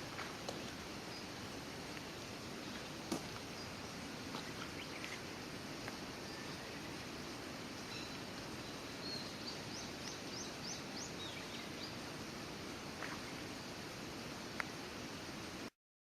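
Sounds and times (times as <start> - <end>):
outdoor background noise: 0.0 - 15.8
bird chirping: 7.8 - 12.0.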